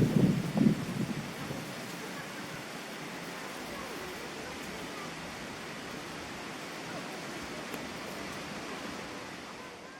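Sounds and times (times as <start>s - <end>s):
outdoor background hiss: 0.0s - 9.9s.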